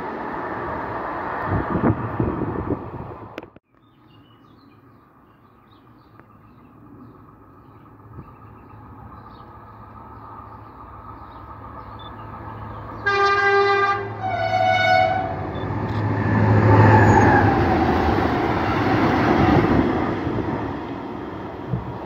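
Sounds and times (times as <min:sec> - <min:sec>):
locomotive drone: 0:00.0 - 0:03.6, 0:05.0 - 0:22.0
rail and wheel noise: 0:00.0 - 0:22.0
two-tone train horn: 0:13.0 - 0:15.6.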